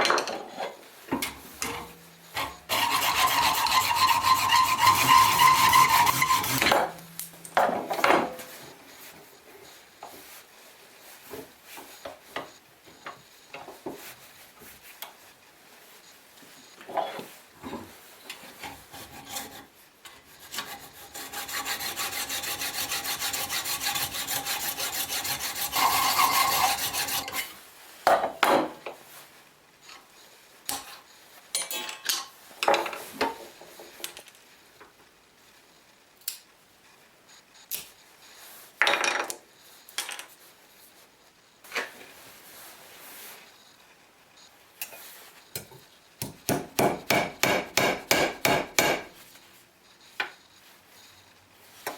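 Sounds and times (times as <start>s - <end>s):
abrasive tool grinding metal: 1.7s - 7.5s, 20.5s - 27.5s.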